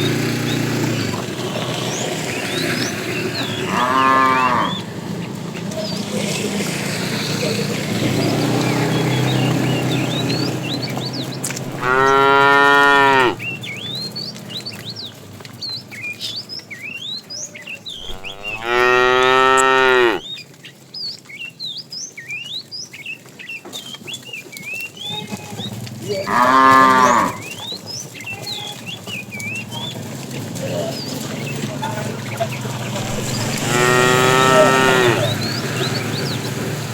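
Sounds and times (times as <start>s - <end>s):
cattle mooing: 3.4s - 4.9s, 11.6s - 13.4s, 18.0s - 20.2s, 26.1s - 27.5s, 33.0s - 35.5s
bird chirps: 16.0s - 20.3s.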